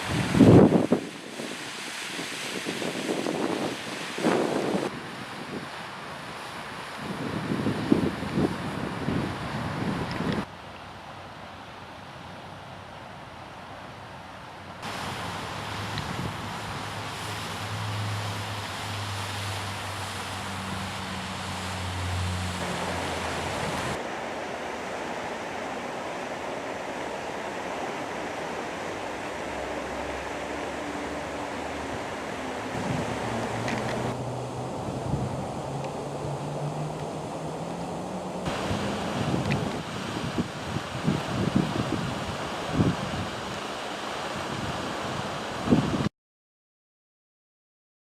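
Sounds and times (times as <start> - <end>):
wind buffeting microphone: 0.0 - 10.5, 28.3 - 43.5
car engines rumbling: 16.7 - 24.0, 29.4 - 39.6.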